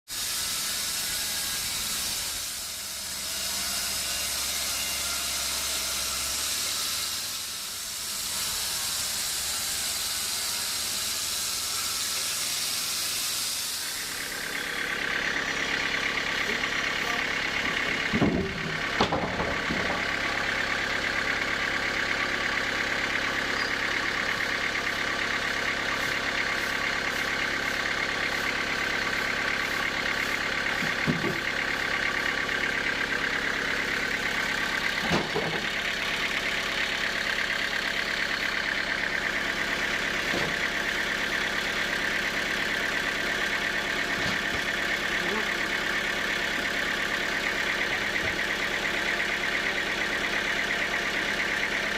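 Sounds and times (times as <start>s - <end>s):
sawmill machinery running: 0.1s - 51.9s
wood or metal knocks: 18.1s - 20.0s.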